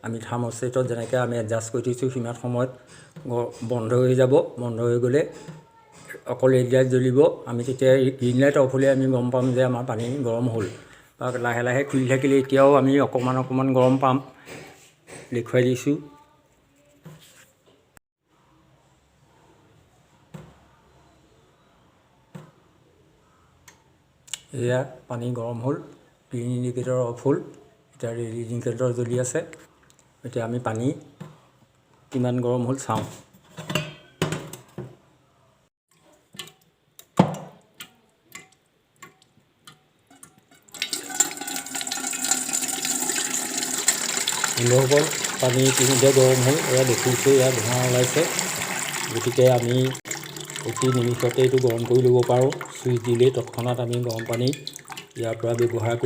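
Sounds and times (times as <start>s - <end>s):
water running into basin: 40.7s - 56.0s.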